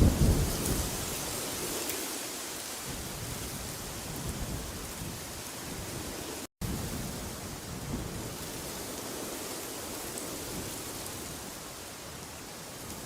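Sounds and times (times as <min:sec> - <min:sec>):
rumbling wind gust: 0:00.0 - 0:01.0.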